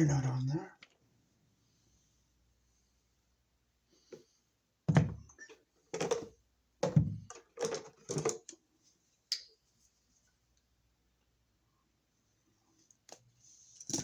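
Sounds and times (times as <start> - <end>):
wires clicking and scraping: 12.8 - 14.0.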